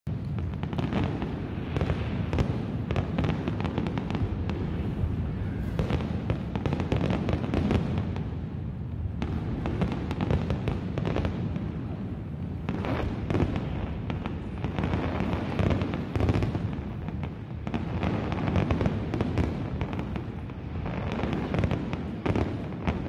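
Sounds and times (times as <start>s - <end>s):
fireworks bangs and crackles: 0.1s - 23.0s.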